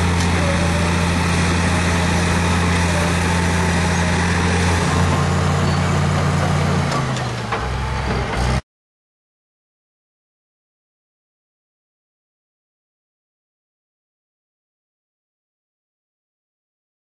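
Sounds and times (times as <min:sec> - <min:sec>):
bulldozer diesel engine running: 0:00.0 - 0:08.6.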